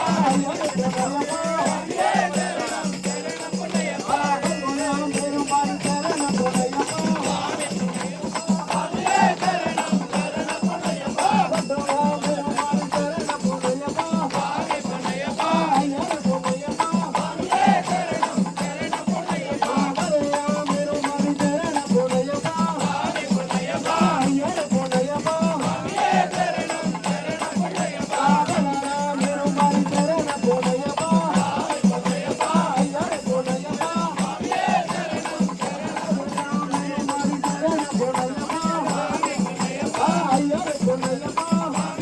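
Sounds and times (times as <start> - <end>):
devotional singing: 0.0 - 42.0
jingling percussion: 0.0 - 42.0.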